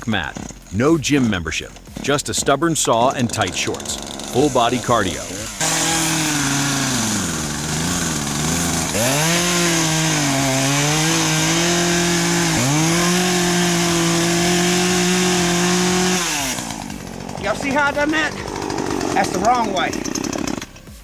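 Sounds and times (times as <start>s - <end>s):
chainsaw running at high revs: 0.0s - 21.0s.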